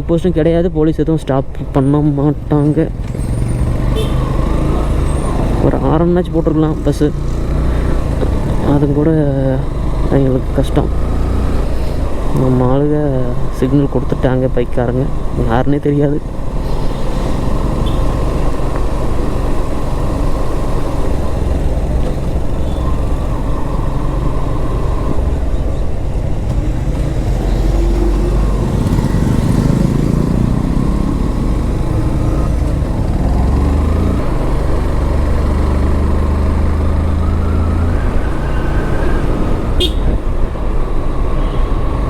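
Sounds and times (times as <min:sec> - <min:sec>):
wind and road noise: 0:00.0 - 0:42.0
motorcycle engine running: 0:16.2 - 0:37.1.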